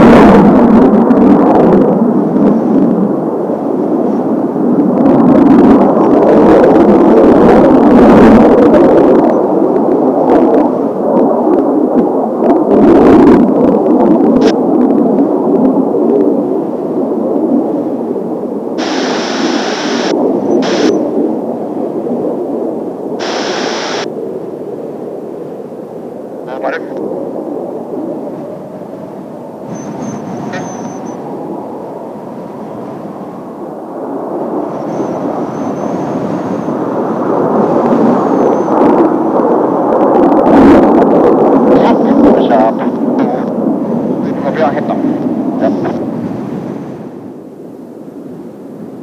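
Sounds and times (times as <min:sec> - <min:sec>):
high whine: 0:00.0 - 0:46.2
low rushing noise: 0:00.0 - 0:47.7
jet roar: 0:00.0 - 0:49.0
radio static bursts: 0:18.8 - 0:21.0, 0:23.2 - 0:24.1, 0:26.5 - 0:27.0, 0:29.7 - 0:31.2, 0:41.8 - 0:43.5.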